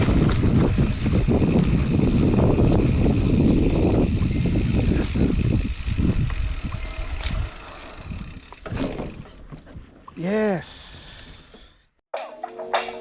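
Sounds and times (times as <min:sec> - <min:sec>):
bike tyres rumbling on dirt: 0:00.0 - 0:10.0
bike rattling over bumps: 0:00.0 - 0:10.2.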